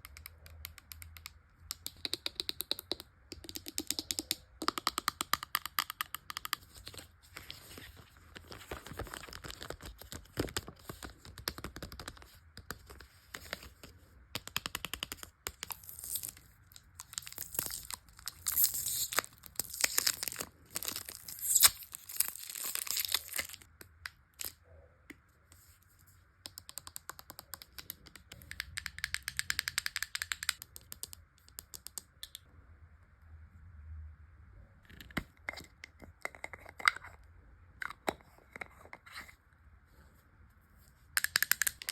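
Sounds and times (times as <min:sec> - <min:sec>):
small plastic clicks and taps: 0:00.0 - 0:06.6
packaging crinkling and tearing: 0:17.2 - 0:23.7.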